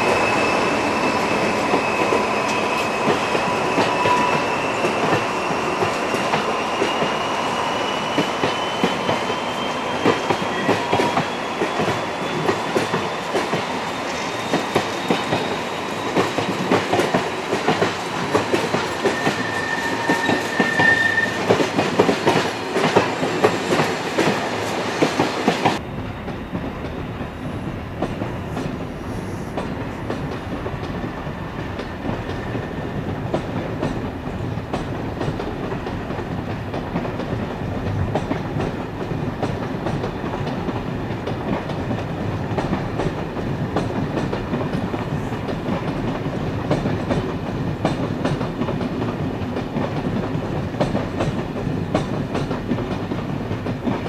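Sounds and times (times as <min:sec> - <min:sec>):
wheel squeal: 0:00.0 - 0:12.6, 0:18.7 - 0:21.6
distant train moving slowly: 0:00.0 - 0:54.0
train wheels clicking over rail joints: 0:08.0 - 0:27.4, 0:29.6 - 0:54.0.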